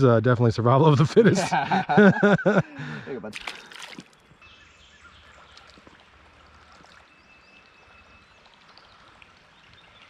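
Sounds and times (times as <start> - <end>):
creek water flowing: 2.8 - 10.0
small water ticks: 3.4 - 4.3, 5.4 - 10.0.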